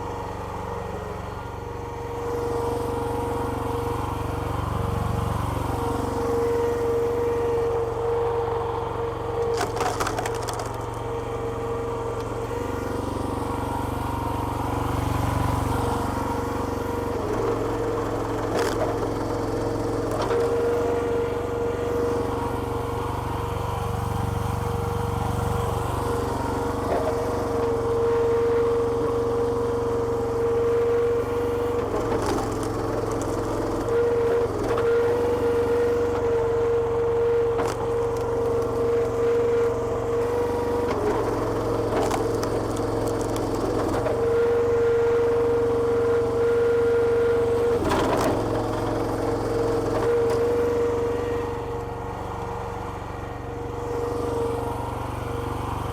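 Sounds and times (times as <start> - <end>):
small engine with hydraulic whine: 0.0 - 55.9
wood splitting cracks: 9.5 - 10.8.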